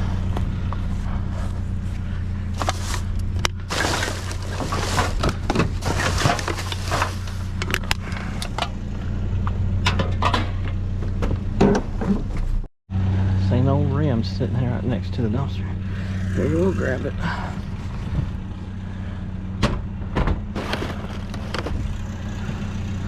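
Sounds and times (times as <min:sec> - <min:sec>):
vehicle engine idling: 0:00.0 - 0:23.0
junk clattering and knocking: 0:02.5 - 0:08.8, 0:09.5 - 0:12.7, 0:19.6 - 0:22.6.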